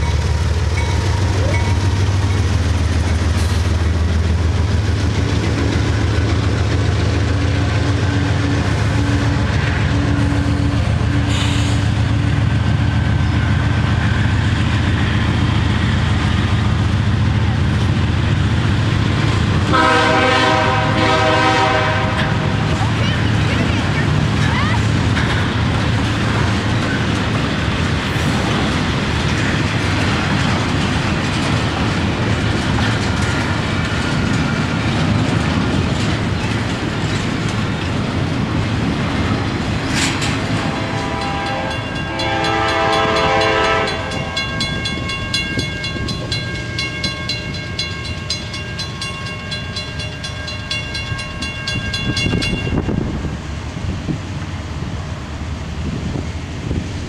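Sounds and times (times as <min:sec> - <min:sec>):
freight cars rolling on rails: 0:00.0 - 0:57.0
train horn chord: 0:19.7 - 0:22.7, 0:40.6 - 0:44.7.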